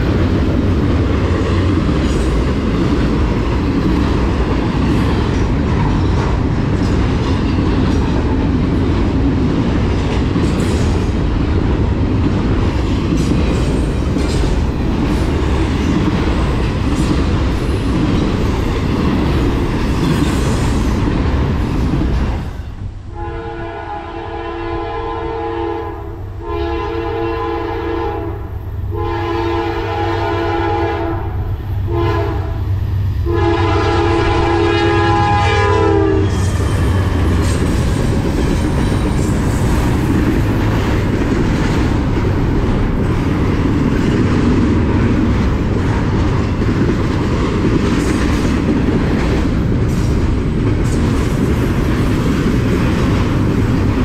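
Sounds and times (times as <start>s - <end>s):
train rumbling and wheels clattering: 0.0s - 54.0s
train horn blasts: 23.1s - 36.5s.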